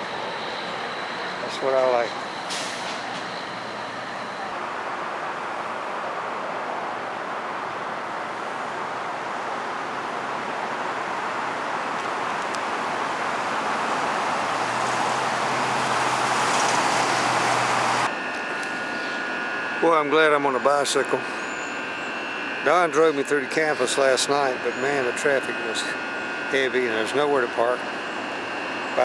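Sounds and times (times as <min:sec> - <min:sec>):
road traffic rush: 0:00.0 - 0:18.2
vehicle passing low hum: 0:12.6 - 0:18.1.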